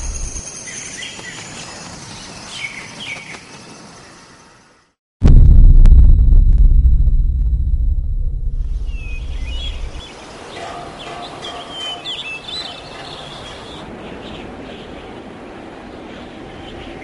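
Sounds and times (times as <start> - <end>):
deep rumble: 5.2 - 10.0
birds chirping: 8.9 - 15.4
steady outdoor hiss: 8.9 - 17.0.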